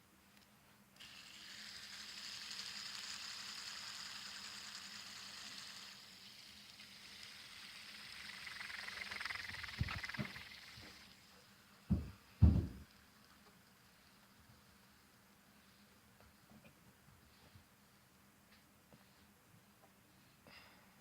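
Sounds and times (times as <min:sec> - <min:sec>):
fidget spinner whirring: 0:01.0 - 0:11.8.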